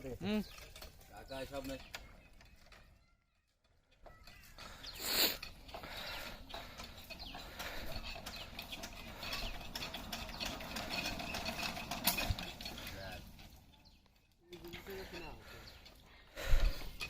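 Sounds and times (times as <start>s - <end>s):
sewing machine clattering: 4.0s - 13.9s.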